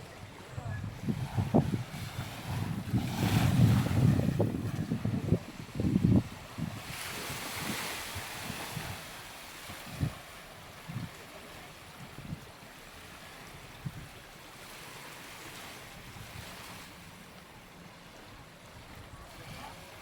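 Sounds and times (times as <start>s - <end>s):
wind buffeting microphone: 0.0s - 11.3s
small waves washing onto beach: 0.0s - 20.0s.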